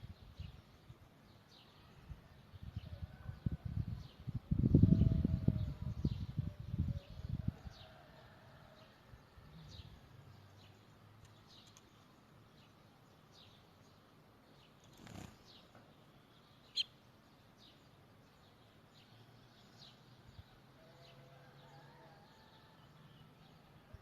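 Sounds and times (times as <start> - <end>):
faint bird chirps: 14.6 - 17.8.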